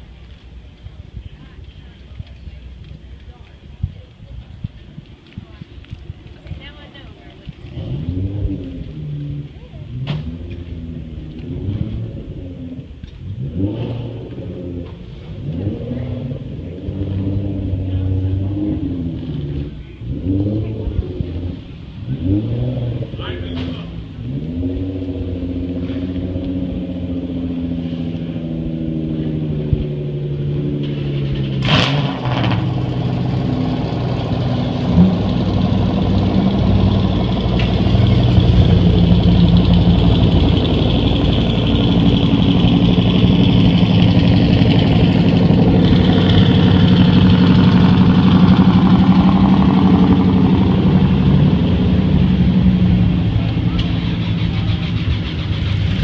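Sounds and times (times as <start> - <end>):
car engines idling: 0.0 - 56.0.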